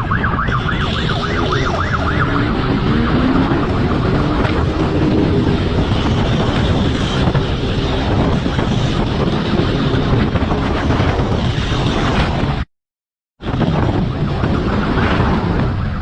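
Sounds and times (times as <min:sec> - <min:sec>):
motorcycle running: 0:00.0 - 0:12.7
wind buffeting microphone: 0:00.0 - 0:12.7, 0:13.4 - 0:16.0.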